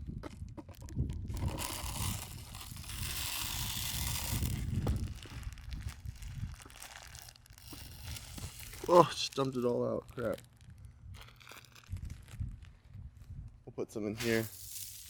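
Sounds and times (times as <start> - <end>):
bird seed pouring: 1.3 - 10.5, 14.2 - 15.0.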